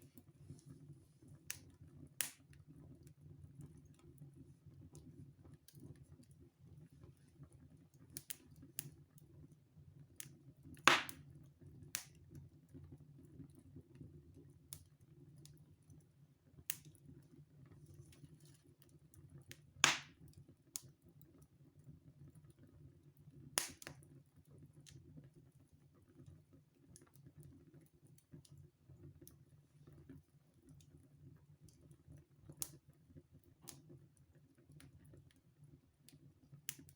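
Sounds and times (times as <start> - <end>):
fire rustling in fireplace: 0.0 - 36.9
fire crackling and popping: 10.8 - 11.3, 19.5 - 20.9, 23.6 - 24.0.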